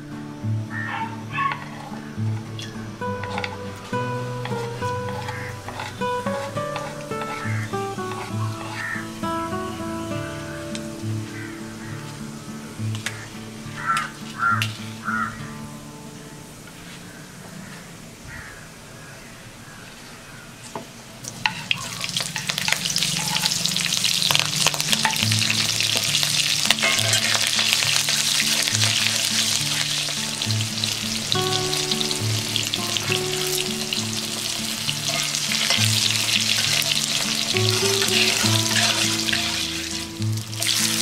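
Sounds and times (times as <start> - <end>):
hot oil sizzling: 0.6 - 15.8, 21.2 - 41.0
metal spatula clicking on pan: 21.4 - 23.6, 24.2 - 26.0.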